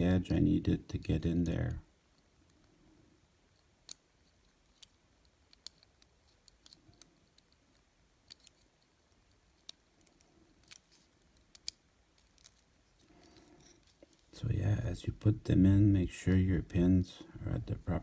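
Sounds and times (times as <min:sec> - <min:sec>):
small clicks of plastic parts: 0:01.4 - 0:02.8, 0:03.5 - 0:14.3.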